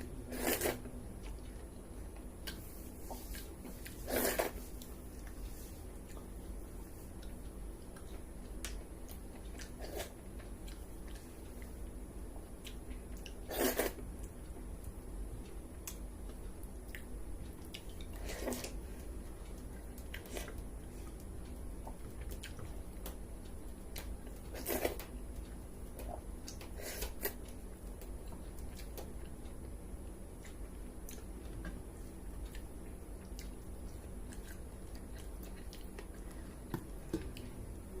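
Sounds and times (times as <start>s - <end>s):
wet chewing: 30.4s - 37.5s.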